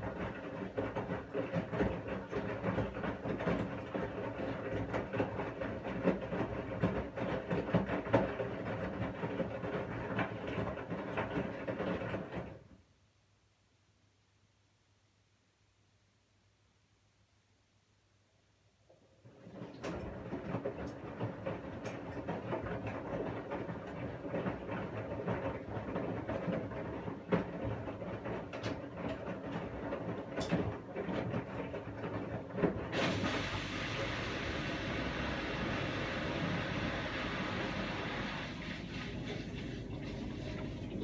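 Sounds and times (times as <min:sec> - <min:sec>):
washing machine drum rumbling: 0:00.0 - 0:12.6, 0:19.4 - 0:41.0
steady rushing hiss: 0:33.3 - 0:38.9.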